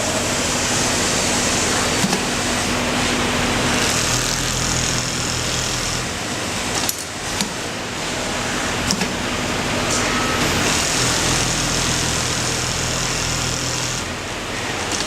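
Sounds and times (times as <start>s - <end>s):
sewing machine stitching: 3.5s - 7.1s, 10.4s - 14.2s.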